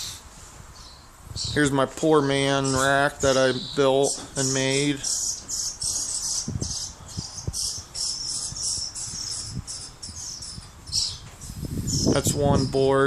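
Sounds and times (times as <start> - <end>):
high-pitched chirping: 2.7 - 12.8.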